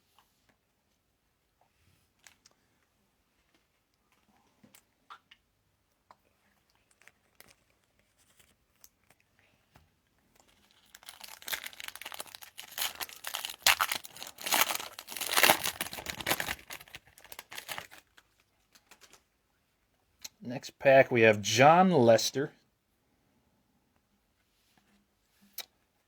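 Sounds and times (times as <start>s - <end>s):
foil wrapper tearing and crinkling: 10.4s - 19.2s.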